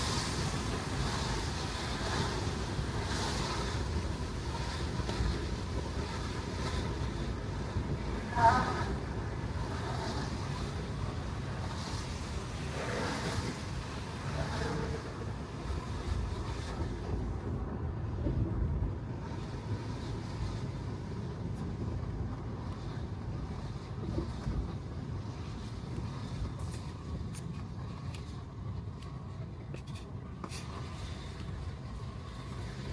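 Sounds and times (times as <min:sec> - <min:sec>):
tyres hissing on wet road: 0:00.0 - 0:05.2, 0:09.7 - 0:15.7.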